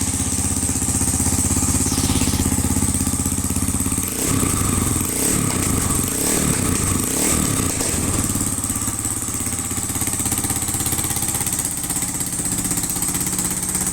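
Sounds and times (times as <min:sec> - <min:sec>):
motorcycle engine idling: 0:00.0 - 0:13.9.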